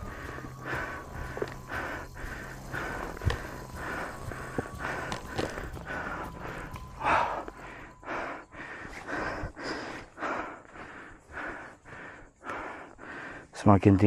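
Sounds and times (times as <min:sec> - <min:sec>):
person panting hard: 0:00.0 - 0:13.5.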